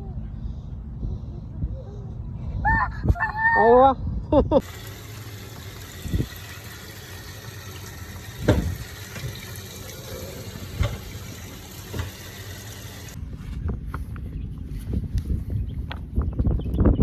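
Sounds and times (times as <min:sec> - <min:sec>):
running water rushing: 0:04.6 - 0:13.2
dull thumps: 0:04.8 - 0:13.2.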